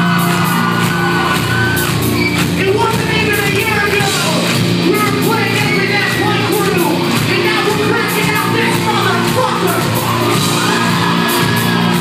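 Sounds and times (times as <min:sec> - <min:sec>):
crowd yelling: 0:00.0 - 0:04.6, 0:07.4 - 0:12.0
live rock band playing: 0:00.0 - 0:12.0
singer's voice: 0:00.0 - 0:12.0.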